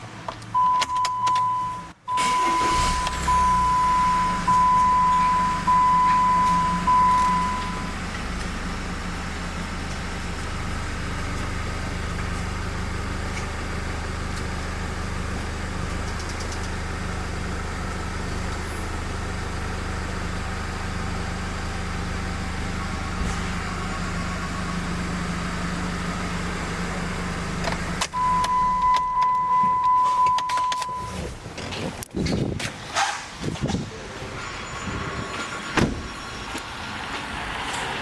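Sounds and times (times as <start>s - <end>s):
car engine idling: 0.0s - 31.8s
high electronic beep: 0.6s - 8.0s, 28.2s - 31.2s.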